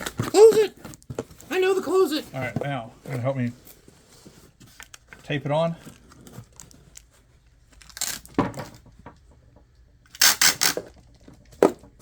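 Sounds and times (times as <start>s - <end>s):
packing tape ripping off roll: 7.8s - 8.3s, 10.1s - 11.0s.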